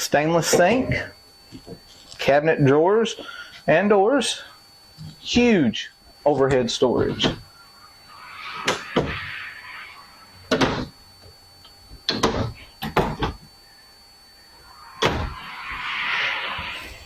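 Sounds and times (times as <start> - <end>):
cabinet doors opening and shutting: 8.6 - 9.3, 10.5 - 10.9, 12.1 - 13.4, 15.0 - 15.4.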